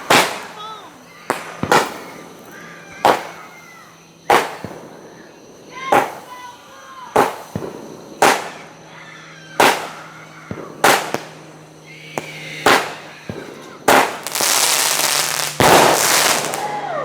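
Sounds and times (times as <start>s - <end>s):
faint fireworks pops: 0.0s - 6.5s, 7.1s - 8.8s, 9.6s - 16.8s
dense fireworks crackling: 0.0s - 17.0s
fireworks bangs: 0.0s - 17.0s.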